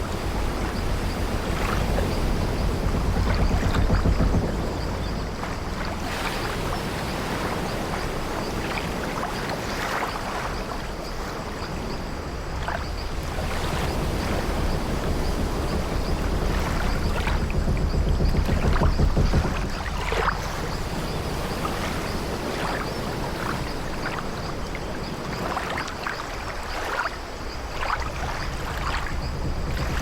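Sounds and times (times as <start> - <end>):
wooden ship timbers creaking: 0.0 - 6.6, 12.8 - 23.1, 28.0 - 30.0
sea waves against wooden ship: 0.0 - 30.0.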